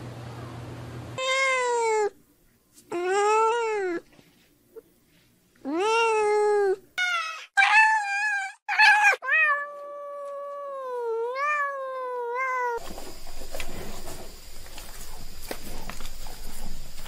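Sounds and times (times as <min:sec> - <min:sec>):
cat meowing: 0:01.2 - 0:02.2, 0:05.7 - 0:12.8.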